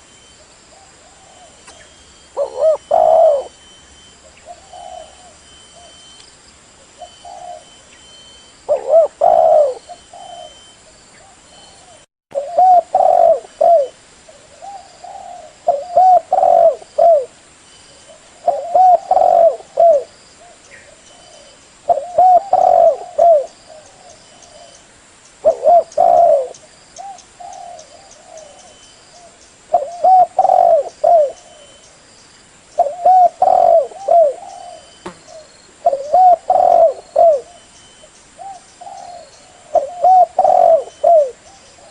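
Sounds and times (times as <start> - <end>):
dove cooing: 2.4 - 6.0, 7.0 - 7.9, 8.7 - 17.4, 18.0 - 24.8, 25.4 - 31.8, 32.8 - 41.9.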